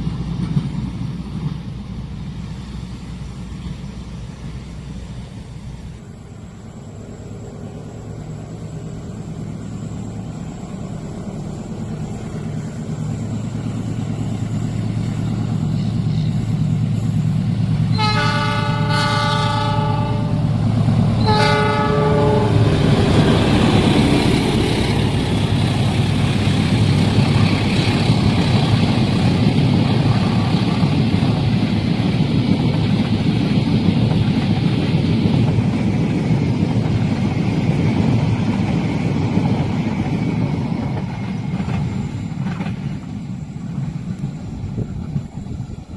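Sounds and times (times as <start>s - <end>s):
diesel locomotive engine hum: 0.0s - 45.9s
wheels rumbling on rail: 0.0s - 45.9s
train horn blasts: 17.9s - 20.6s, 21.2s - 23.4s.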